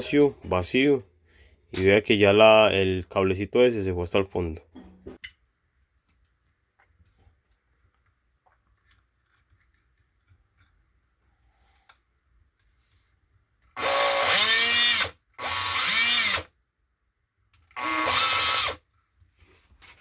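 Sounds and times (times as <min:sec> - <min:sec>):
cordless drill motor spinning: 0:13.8 - 0:16.5, 0:17.7 - 0:18.8.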